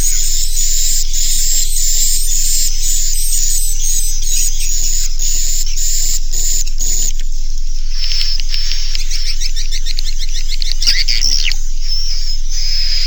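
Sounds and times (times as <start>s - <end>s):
high drawn-out bird chirps: 0.0s - 7.1s
fast twittering chirps: 0.0s - 13.0s
low electrical hum: 0.0s - 13.0s.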